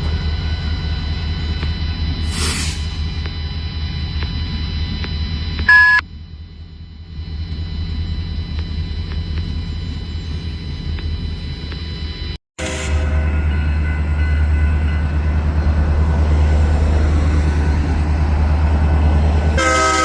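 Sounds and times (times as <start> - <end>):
loud electronic beep: 5.6 - 6.0.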